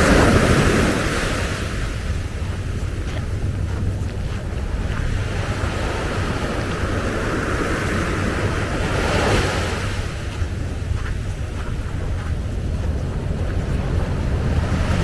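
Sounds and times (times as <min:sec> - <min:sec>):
ocean wave breaking: 0:00.0 - 0:15.0
wind rumble on microphone: 0:00.0 - 0:15.0.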